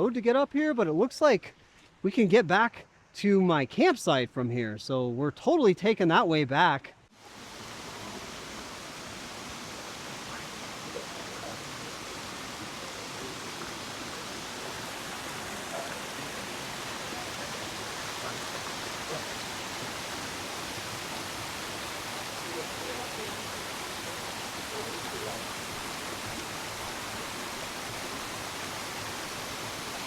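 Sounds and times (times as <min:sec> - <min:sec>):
waterfall rushing: 0:07.2 - 0:30.0.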